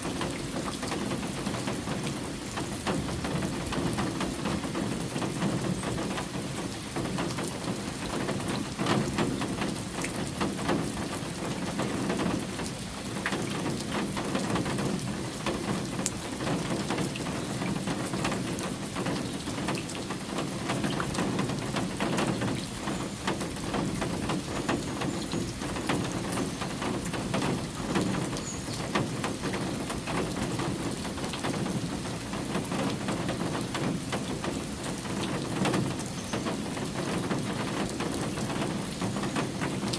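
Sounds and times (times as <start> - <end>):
raindrop ticks: 0.0 - 39.9
steady rain hiss: 0.0 - 39.9.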